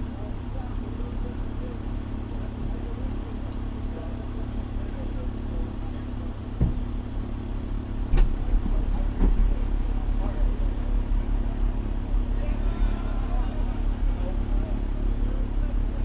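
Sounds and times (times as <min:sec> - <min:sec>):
diesel engine idling: 0:00.0 - 0:16.0
thump: 0:06.6 - 0:06.9.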